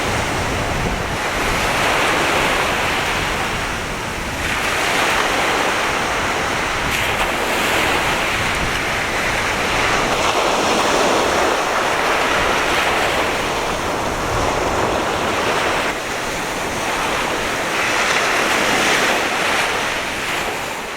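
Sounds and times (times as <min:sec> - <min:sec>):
sea surf breaking: 0:00.0 - 0:20.9
wind on microphone: 0:00.0 - 0:20.9.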